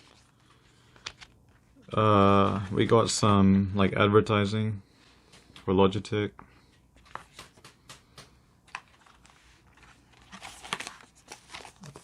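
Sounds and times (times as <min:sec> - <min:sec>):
cardboard and paper rustling: 0:00.0 - 0:02.9, 0:07.0 - 0:07.8, 0:08.6 - 0:12.0.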